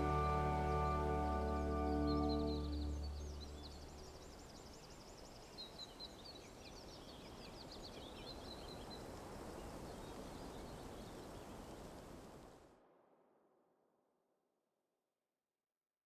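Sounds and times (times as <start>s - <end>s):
small birds chirping: 0.0s - 11.8s
soft steady hiss: 0.0s - 13.0s.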